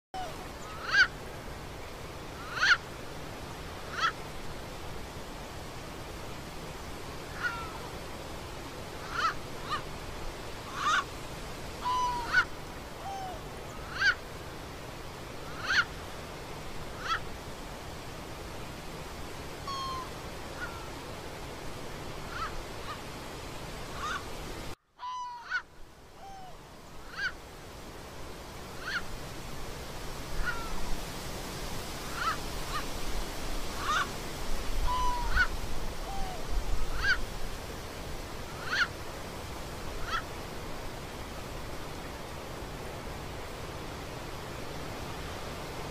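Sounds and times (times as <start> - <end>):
outdoor hiss: 0.2 - 24.9, 25.5 - 45.9
downward-sliding bird calls: 10.6 - 11.1, 11.8 - 14.2, 19.7 - 21.0, 34.8 - 37.2.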